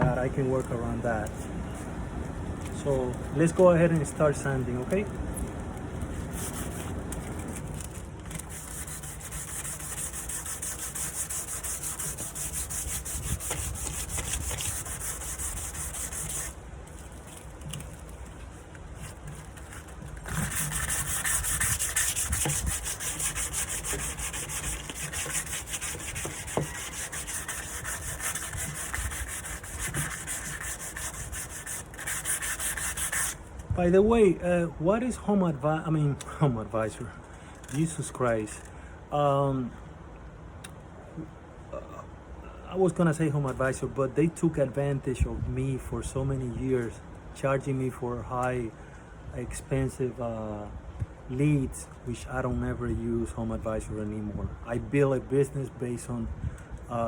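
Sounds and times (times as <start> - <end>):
sanding wood surface: 6.1 - 16.6, 19.0 - 33.4.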